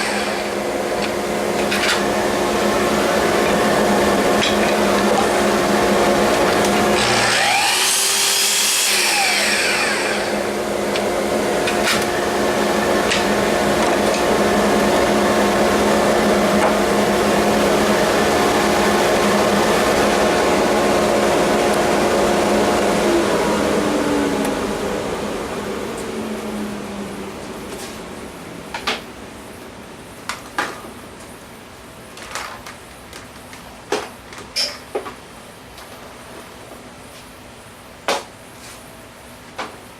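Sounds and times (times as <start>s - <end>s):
power tool whine: 0.0s - 27.0s
vacuum motor humming: 0.0s - 28.2s.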